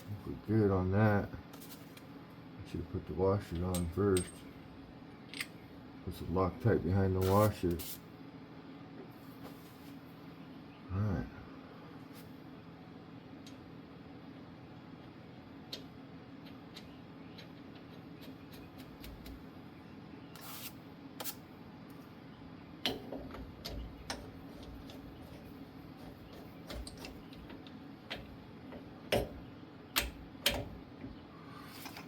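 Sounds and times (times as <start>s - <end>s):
steady low hum: 0.0s - 32.0s
small metal parts clicking: 5.3s - 5.6s.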